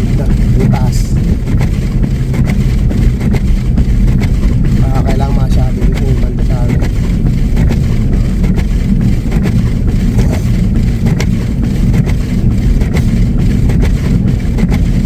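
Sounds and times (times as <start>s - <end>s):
truck driving through snow: 0.0s - 15.0s.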